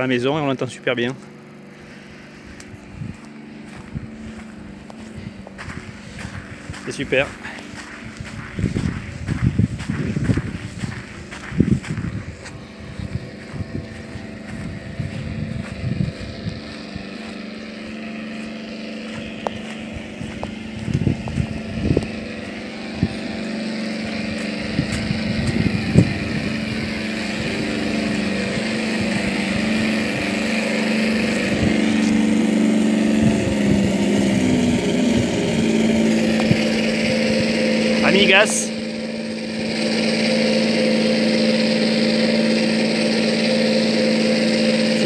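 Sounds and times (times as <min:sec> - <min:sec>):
simulated engine drone from speaker: 0:00.0 - 0:45.0.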